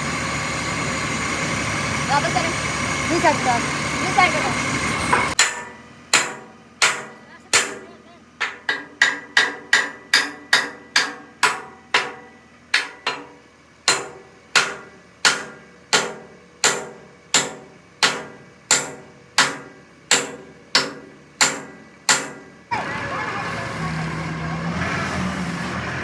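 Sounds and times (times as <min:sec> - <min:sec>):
hammer striking metal: 0:05.1 - 0:22.6.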